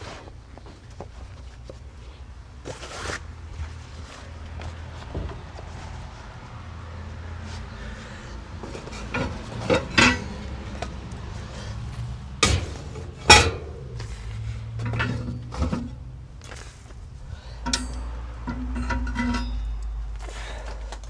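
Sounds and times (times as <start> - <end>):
metal grill parts clanking: 7.9 - 21.0.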